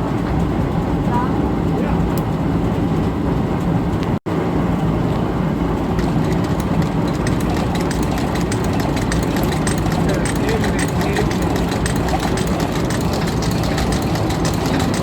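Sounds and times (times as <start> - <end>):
engine drone: 0.0 - 15.0
sewing machine ticking: 6.0 - 15.0.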